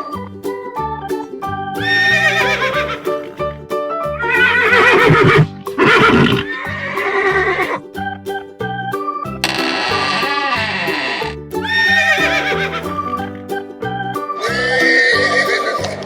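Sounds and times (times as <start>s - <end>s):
background music with steady beat: 0.0s - 16.0s
horse whinnying: 1.8s - 3.0s, 4.6s - 6.9s, 9.8s - 12.9s.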